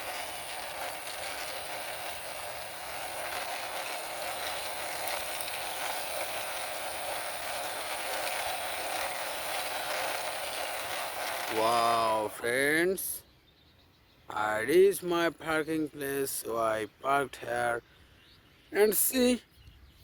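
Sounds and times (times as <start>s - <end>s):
toy truck wheels rolling and rattling: 0.0s - 13.2s.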